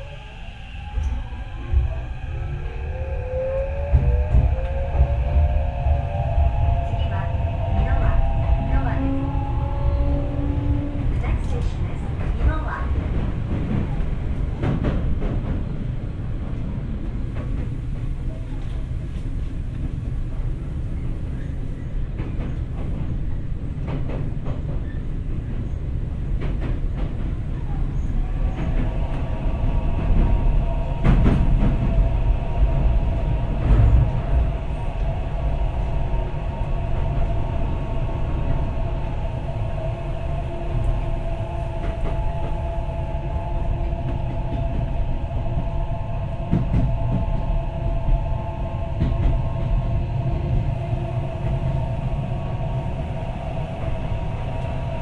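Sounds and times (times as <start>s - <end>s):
subway car rumble: 0.0s - 55.0s.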